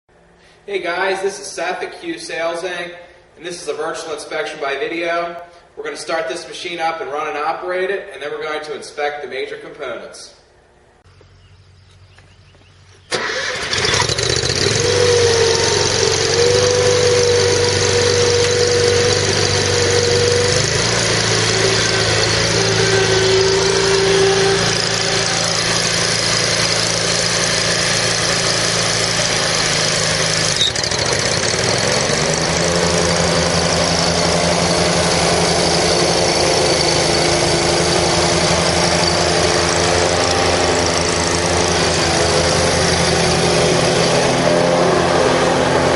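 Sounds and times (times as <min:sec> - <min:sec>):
mower engine starting and running: 0:11.1 - 0:45.9.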